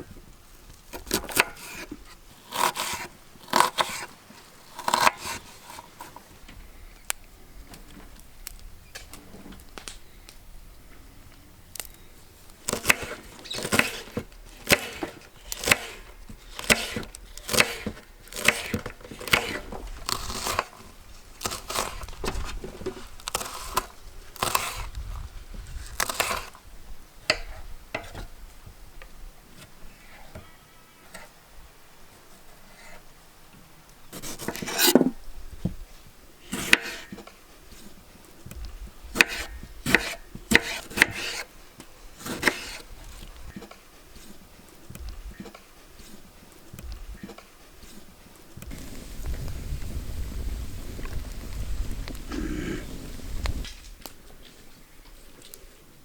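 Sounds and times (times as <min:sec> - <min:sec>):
food being cut by hand: 0:01.0 - 0:06.2, 0:12.6 - 0:26.6, 0:34.1 - 0:35.2, 0:36.4 - 0:37.2, 0:39.1 - 0:41.5, 0:42.2 - 0:43.3.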